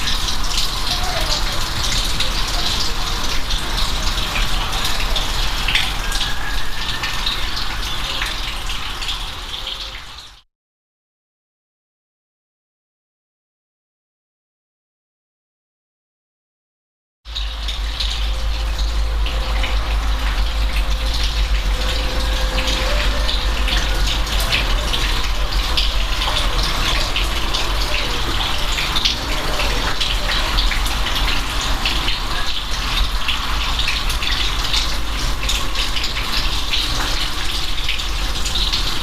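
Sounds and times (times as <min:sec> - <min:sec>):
steady rain: 0:00.0 - 0:10.4, 0:17.3 - 0:39.0
deep rumble: 0:17.3 - 0:27.8.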